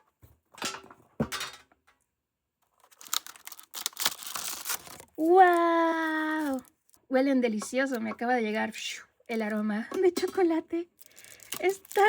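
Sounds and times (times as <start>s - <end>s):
wrapping crinkling and tearing: 2.7s - 7.1s, 10.9s - 12.0s
packaging clicks: 2.8s - 5.2s.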